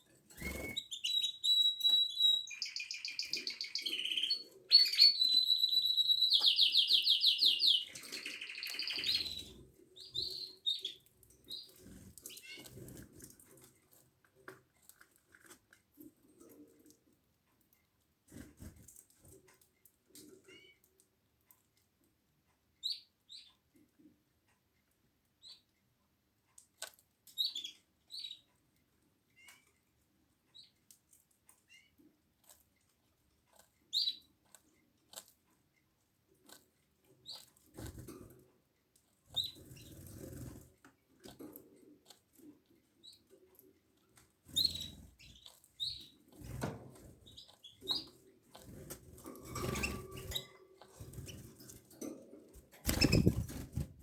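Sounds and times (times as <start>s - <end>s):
canaries chirping: 0.0s - 13.8s, 20.1s - 21.0s, 22.6s - 23.7s, 25.4s - 25.7s, 27.3s - 28.5s, 33.5s - 34.4s, 36.4s - 38.4s, 39.3s - 40.7s, 41.3s - 54.0s
wings fluttering and rustling: 18.3s - 19.4s, 39.3s - 41.6s, 44.1s - 54.0s.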